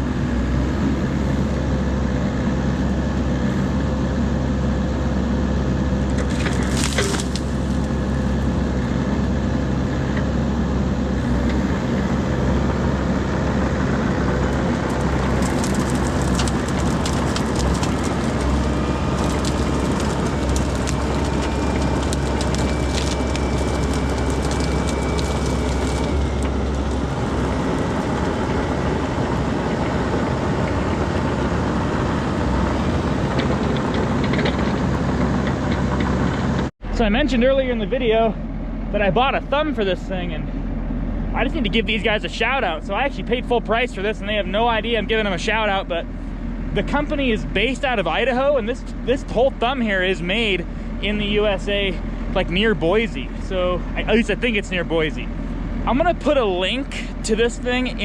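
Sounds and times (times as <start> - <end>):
excavator engine running: 0.0 - 58.0
wood cracking and splintering: 6.1 - 8.0, 14.3 - 28.9.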